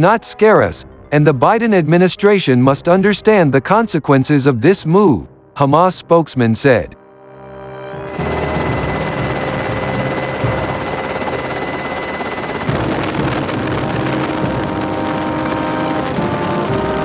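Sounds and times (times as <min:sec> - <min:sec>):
faint steady tones: 0:08.1 - 0:12.7.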